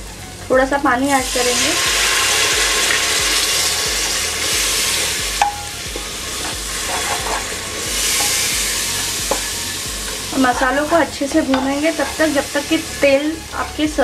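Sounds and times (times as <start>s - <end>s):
onion and spices sizzling in oil: 0.1s - 14.0s
wooden spatula stirring and scraping: 1.2s - 14.0s.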